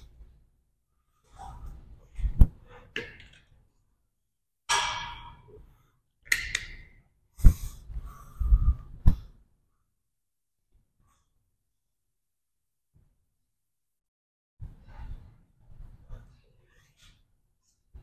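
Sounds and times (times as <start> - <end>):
man breathing heavily: 7.4 - 9.0.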